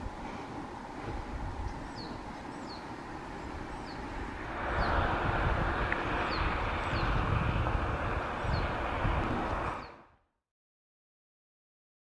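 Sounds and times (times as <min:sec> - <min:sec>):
rushing noise: 0:02.9 - 0:10.2
low rumble: 0:04.2 - 0:10.2.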